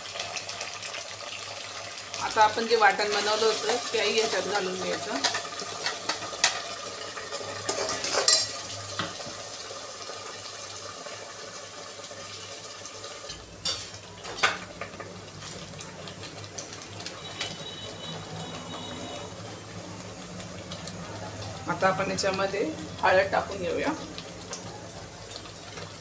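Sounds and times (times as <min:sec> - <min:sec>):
paste sizzling in oil: 0:00.0 - 0:26.0
metal spatula scraping pot: 0:07.6 - 0:08.6.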